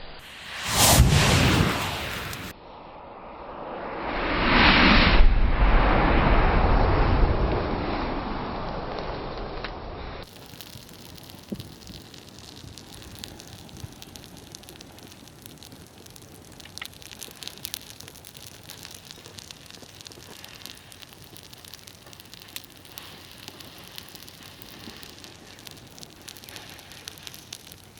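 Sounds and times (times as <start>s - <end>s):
burning matches crackling: 0.2s - 2.5s, 10.2s - 27.9s.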